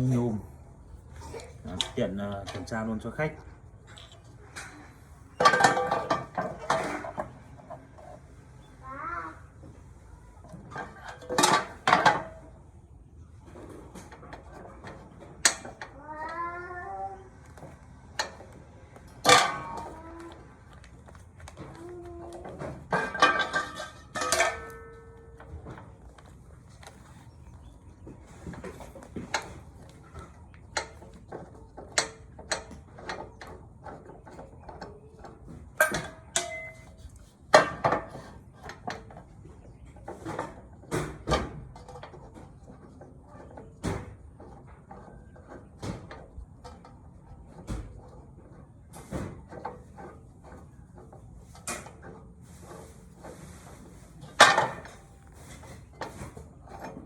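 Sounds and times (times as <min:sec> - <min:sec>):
metal parts clattering: 0:05.4 - 0:08.2, 0:10.7 - 0:12.3, 0:19.0 - 0:27.4, 0:35.6 - 0:39.0, 0:54.2 - 0:57.0.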